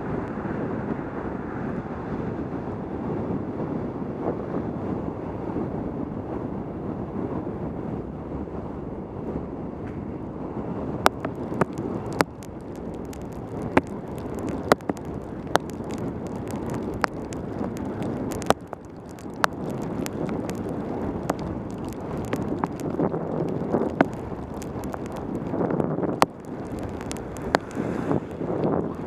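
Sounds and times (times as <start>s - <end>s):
tyre and road rush: 0.0s - 29.0s
wind buffeting microphone: 0.0s - 29.0s
sharp taps and clicks: 11.0s - 27.8s.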